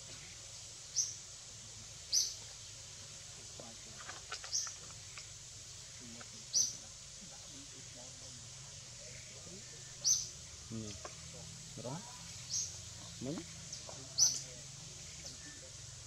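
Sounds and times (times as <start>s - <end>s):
bird chirping: 0.0s - 1.2s, 2.0s - 2.7s, 3.6s - 5.3s, 5.9s - 16.0s
low outdoor hum: 0.0s - 16.0s
faint ticks: 4.0s - 5.4s.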